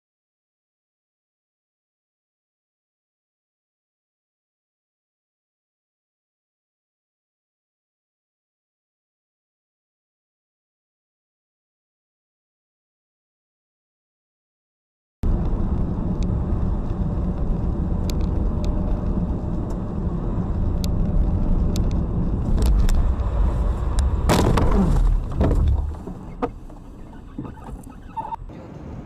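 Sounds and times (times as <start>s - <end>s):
road and engine rumble: 15.2s - 29.0s.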